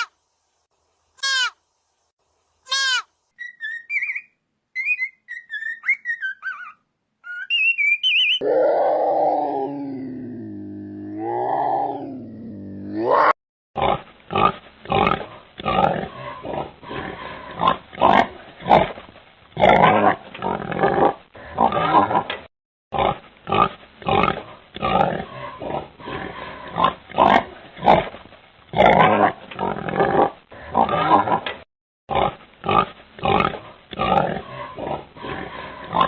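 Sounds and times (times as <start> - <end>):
pigs grunting: 8.4 - 19.0, 19.6 - 36.0.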